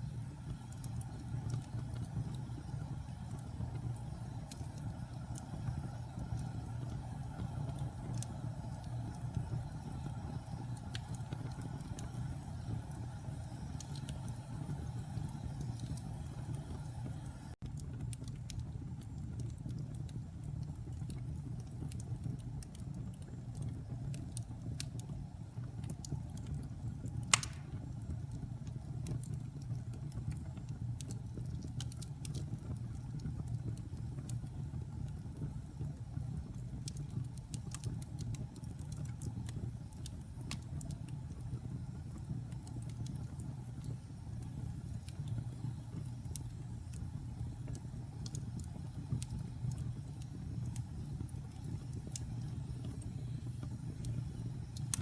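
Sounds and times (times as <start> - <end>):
fire crackling: 0.0 - 55.0
low rumble of flames: 0.0 - 55.0
sharp pop of burning wood: 27.3 - 28.0.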